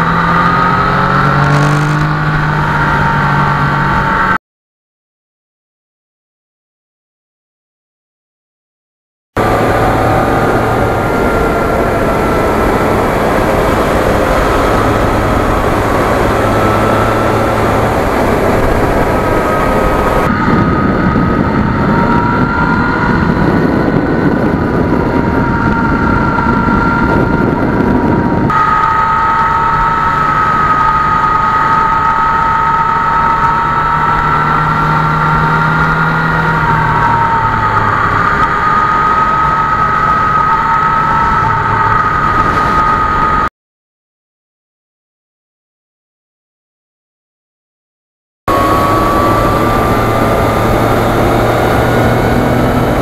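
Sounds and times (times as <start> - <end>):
motorcycle engine running: 0.0 - 4.3, 9.4 - 41.4
road noise: 0.0 - 4.4, 9.4 - 43.5, 48.5 - 53.0
wind noise: 0.0 - 4.4, 9.4 - 43.5, 48.5 - 53.0.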